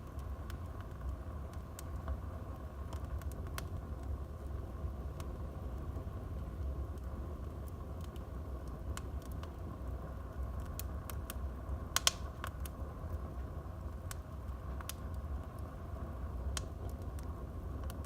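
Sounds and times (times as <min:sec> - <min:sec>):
fire crackling and popping: 0:00.0 - 0:18.0
low rumble of flames: 0:00.0 - 0:18.0
loud cluster of fire cracks: 0:10.4 - 0:18.0.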